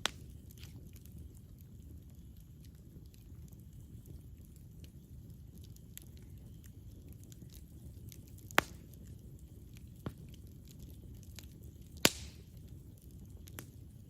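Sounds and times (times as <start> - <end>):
campfire burning: 0.0 - 14.0
crackles of burning wood: 0.0 - 14.0
loud sharp pops: 12.0 - 12.4.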